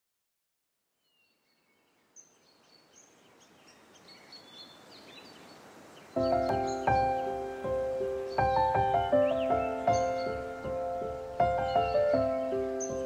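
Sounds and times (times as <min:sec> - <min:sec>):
soft outdoor hiss: 0:00.6 - 0:13.0
birds chirping: 0:01.0 - 0:13.0
music with loud held notes: 0:06.2 - 0:13.0.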